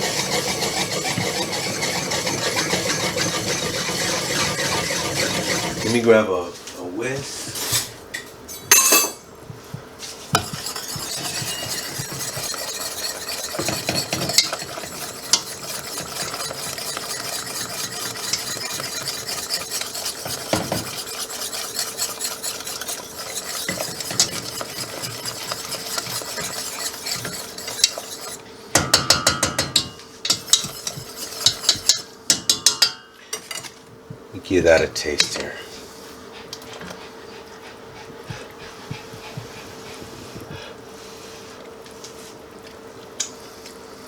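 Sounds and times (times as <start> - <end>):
whisk scraping in a pan: 0.0 - 8.0, 9.6 - 32.8
whisk clicking against pan: 10.3 - 32.9.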